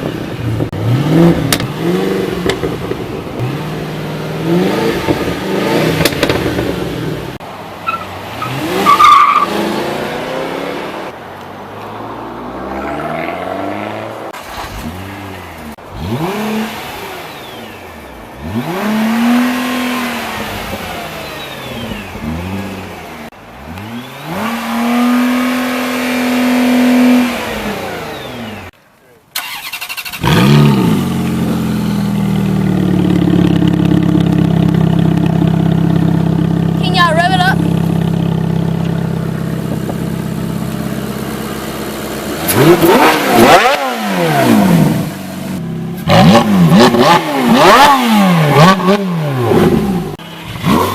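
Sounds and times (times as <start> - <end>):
car engines revving and accelerating: 0.0 - 28.8, 29.4 - 50.9
tire squeal: 7.8 - 9.6, 31.4 - 32.4.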